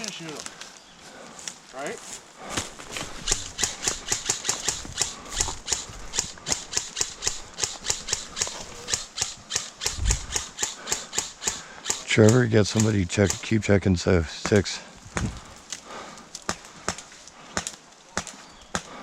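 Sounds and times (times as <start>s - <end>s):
airsoft rifle shots: 3.2s - 13.6s.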